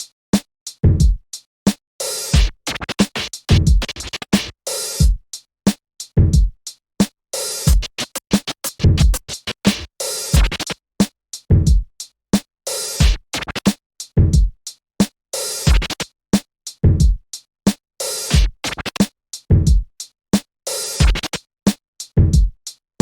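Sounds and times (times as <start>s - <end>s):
stuttering electronic beat music: 10.4s - 10.7s.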